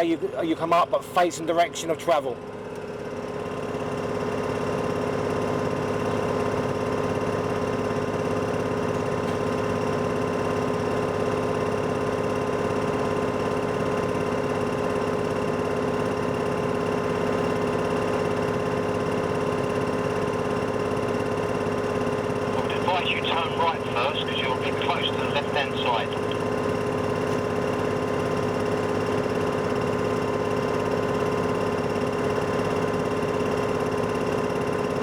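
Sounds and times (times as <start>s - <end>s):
diesel engine running: 20.7s - 35.0s.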